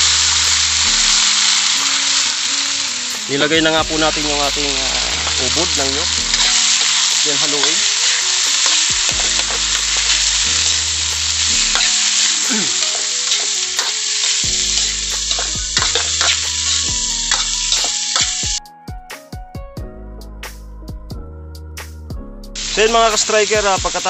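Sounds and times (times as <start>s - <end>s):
food sizzling in hot oil: 0.0s - 18.6s, 22.6s - 24.0s
metal spatula scraping pan: 11.6s - 18.3s.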